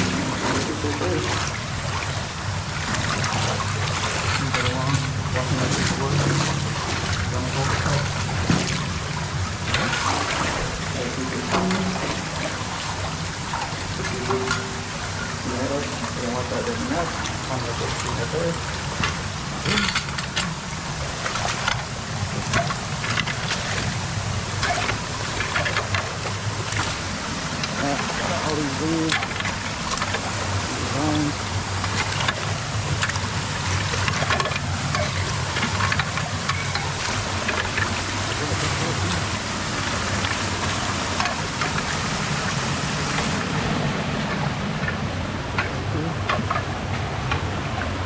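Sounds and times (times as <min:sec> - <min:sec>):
creek water running: 0:00.0 - 0:48.0
short water splashes: 0:00.0 - 0:48.0.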